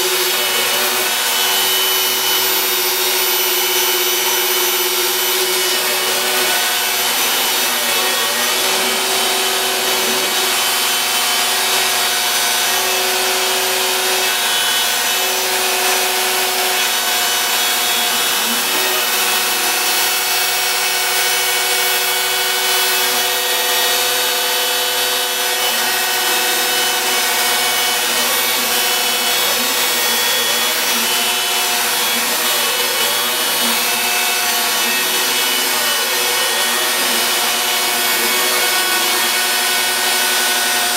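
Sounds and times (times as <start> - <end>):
router motor cutting board: 0.0 - 40.9.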